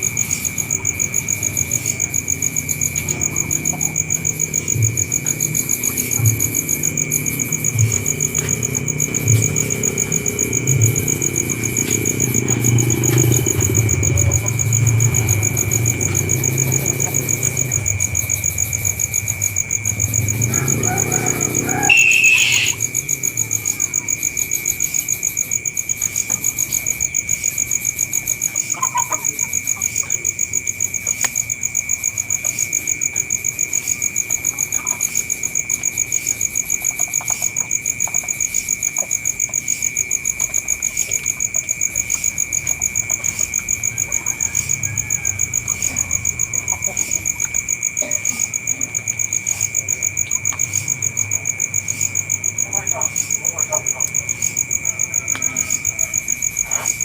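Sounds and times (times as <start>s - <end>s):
insects trilling: 0.0s - 57.0s
loud high squeal: 21.6s - 22.8s.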